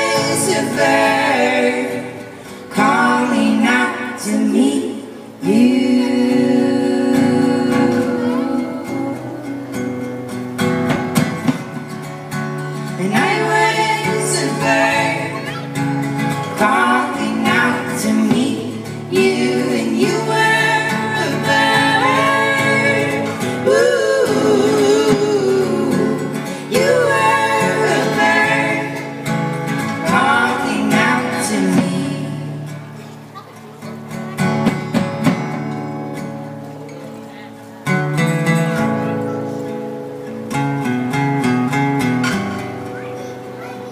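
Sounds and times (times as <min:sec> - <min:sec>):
person singing: 0:00.0 - 0:10.1, 0:12.8 - 0:32.7
guitar: 0:00.0 - 0:43.9.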